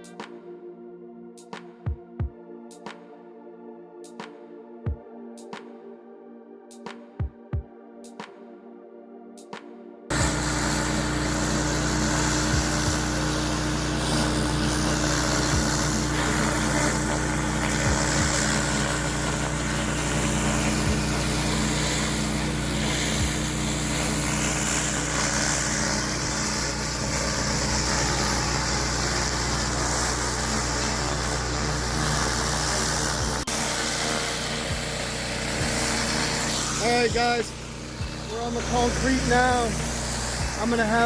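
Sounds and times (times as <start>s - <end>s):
gasoline engine running: 10.1s - 41.0s
high-pressure water spray hiss: 10.1s - 41.0s.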